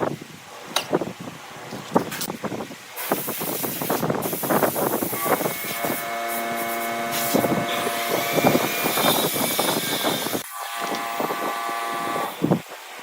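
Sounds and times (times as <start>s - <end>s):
woodworking machine cutting wood: 5.2s - 12.4s
steady motor hum: 5.2s - 12.5s.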